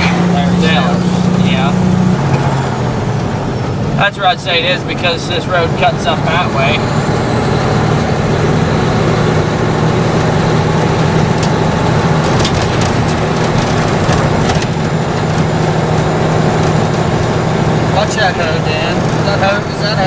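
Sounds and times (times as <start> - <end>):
truck diesel engine running: 0.0 - 20.0
light rattles and clicks: 10.2 - 17.4.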